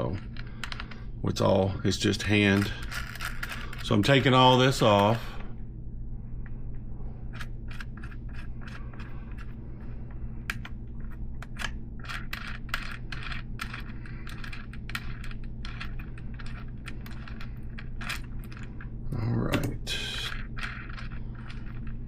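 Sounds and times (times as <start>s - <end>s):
low hum: 0.0s - 22.0s
metal parts clinking and clicking: 2.4s - 5.2s.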